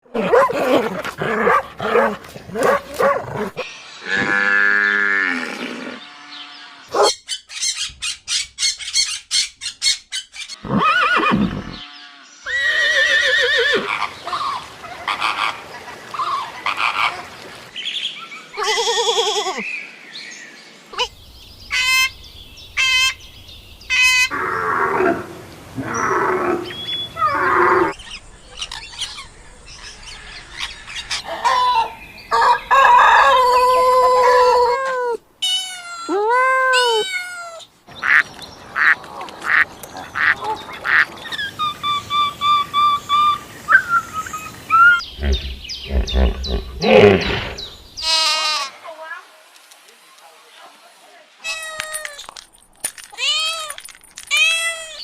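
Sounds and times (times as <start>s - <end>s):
farm animals calling: 23.9s - 34.8s, 36.8s - 48.8s.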